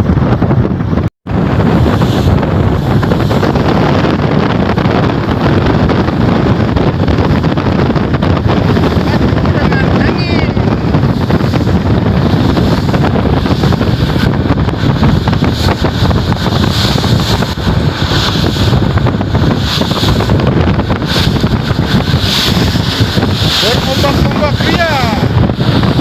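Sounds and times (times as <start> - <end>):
wind buffeting microphone: 0.0 - 26.0
hiss: 21.0 - 26.0.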